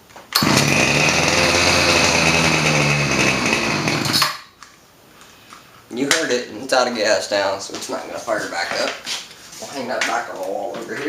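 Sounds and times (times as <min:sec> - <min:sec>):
small gas engine running: 0:00.4 - 0:04.4.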